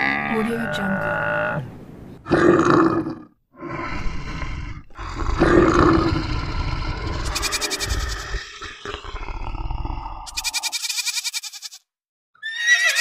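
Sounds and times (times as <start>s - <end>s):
animal roaring: 0.0s - 10.4s.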